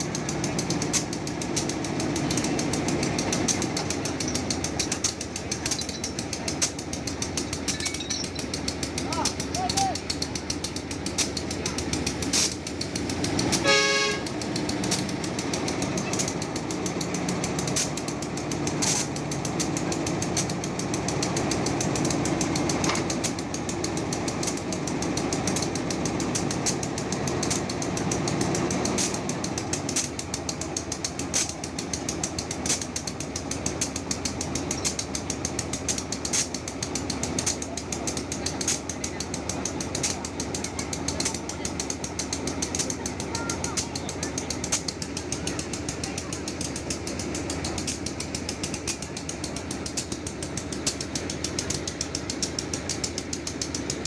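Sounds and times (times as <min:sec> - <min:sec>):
train rumbling: 0:00.0 - 0:54.0
train horn: 0:13.6 - 0:14.4.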